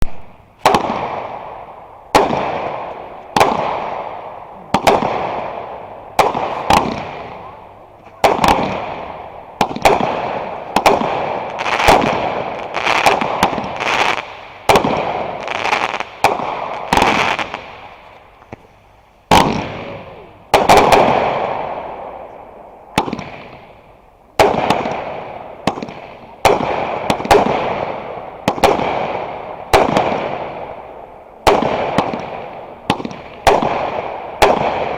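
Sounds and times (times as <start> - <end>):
fireworks bangs with echo: 0.0 - 34.9.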